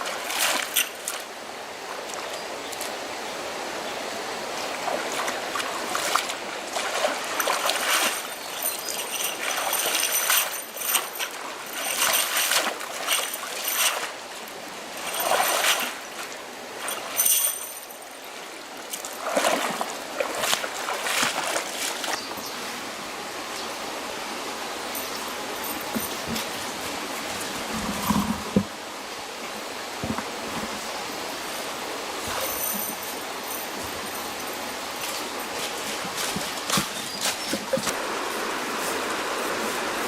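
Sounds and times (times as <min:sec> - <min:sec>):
running water splashing: 0:00.0 - 0:03.0, 0:04.3 - 0:22.4.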